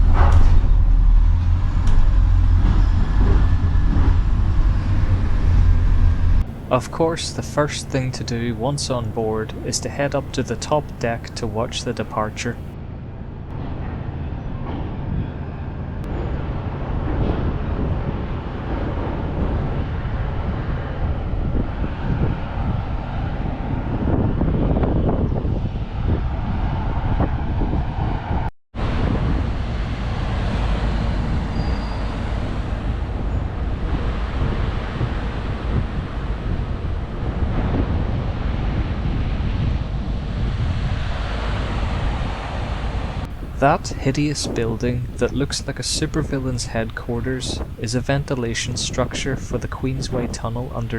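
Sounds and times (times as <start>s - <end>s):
ferry engines rumbling: 0.0s - 12.8s, 28.8s - 50.9s
wind gusting on microphone: 0.0s - 12.8s, 14.3s - 50.9s.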